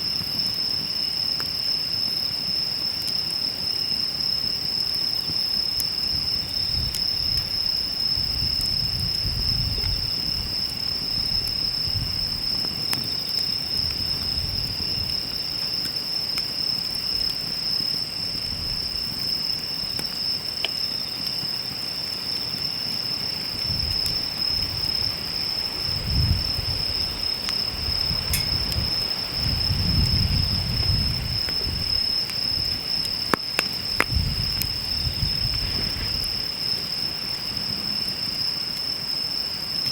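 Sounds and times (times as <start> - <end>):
insects chirring: 0.0 - 39.9
fire crackling and popping: 0.1 - 39.1
campfire rumbling: 0.2 - 39.7.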